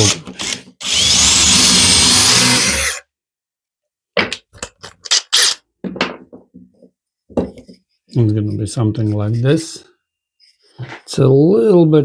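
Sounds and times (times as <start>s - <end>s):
power drill boring wood: 0.0s - 3.0s.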